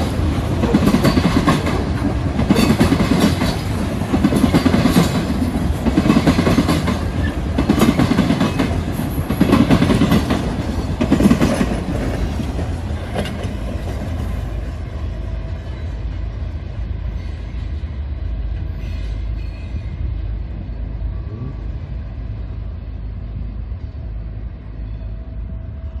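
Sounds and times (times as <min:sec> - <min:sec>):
train wheels banging over crossings: 0:00.0 - 0:16.0
deep train rumble: 0:00.0 - 0:26.0.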